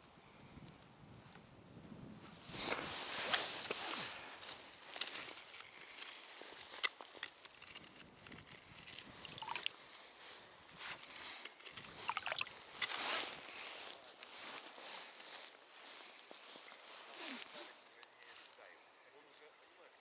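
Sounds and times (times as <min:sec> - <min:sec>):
wet squishing and sloshing: 0:09.2 - 0:09.8, 0:11.8 - 0:12.6.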